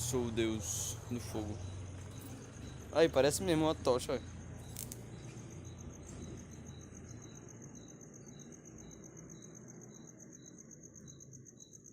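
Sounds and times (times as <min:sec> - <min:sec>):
low steady rumble: 0:00.0 - 0:09.0
crickets trilling: 0:00.0 - 0:11.9
lower insect chirp: 0:00.0 - 0:11.9.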